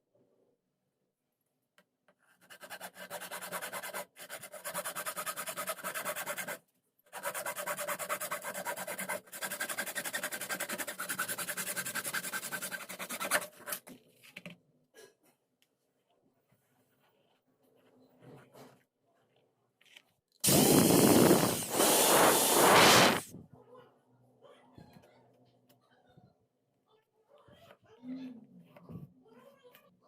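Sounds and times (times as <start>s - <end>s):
tool rasping against material: 2.4s - 13.8s.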